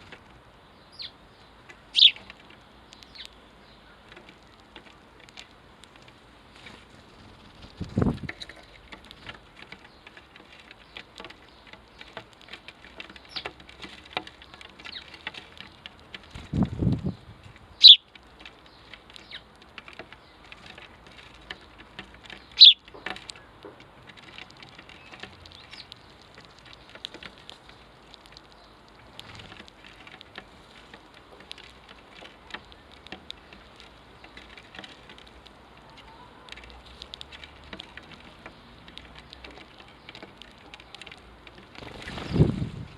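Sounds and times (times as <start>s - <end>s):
patter of small ticks: 0.0s - 42.9s
sparrow chirps: 0.6s - 4.1s, 8.2s - 13.6s, 14.4s - 19.5s, 21.5s - 23.7s, 24.8s - 27.1s.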